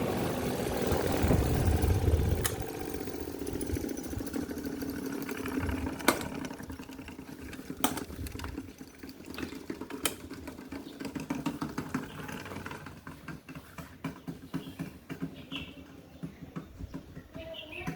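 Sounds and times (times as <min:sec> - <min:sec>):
electric fan motors humming: 0:00.0 - 0:13.2
sharp clicks: 0:02.3 - 0:02.7.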